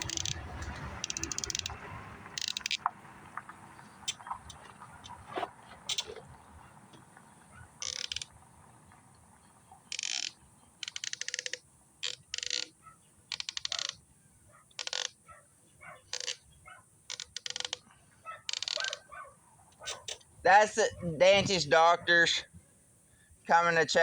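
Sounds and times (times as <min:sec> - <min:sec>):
ratchet wrench clicking: 0:00.0 - 0:00.4, 0:01.0 - 0:01.8, 0:02.4 - 0:02.8, 0:05.9 - 0:06.2, 0:07.8 - 0:08.3, 0:09.9 - 0:14.0, 0:14.8 - 0:15.2, 0:16.1 - 0:16.4, 0:17.1 - 0:17.8, 0:18.5 - 0:19.0.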